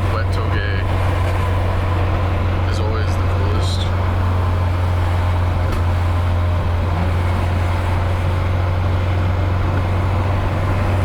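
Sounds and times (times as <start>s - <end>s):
car engine and exhaust droning: 0.0s - 11.0s.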